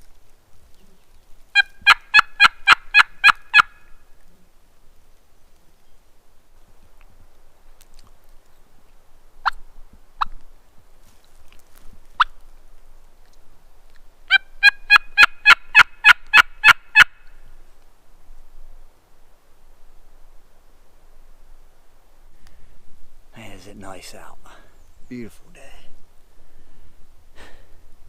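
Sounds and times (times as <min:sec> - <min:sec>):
turkey call clucks: 0:01.5 - 0:03.9, 0:14.3 - 0:17.3
turkey call yelps: 0:01.5 - 0:03.9, 0:14.3 - 0:17.3.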